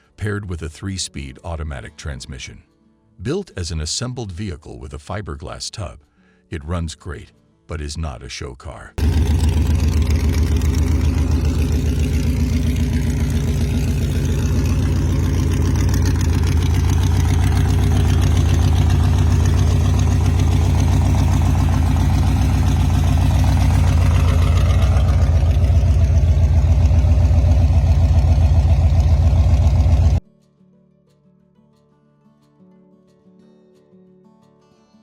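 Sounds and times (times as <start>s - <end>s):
car engine running: 9.0s - 30.2s.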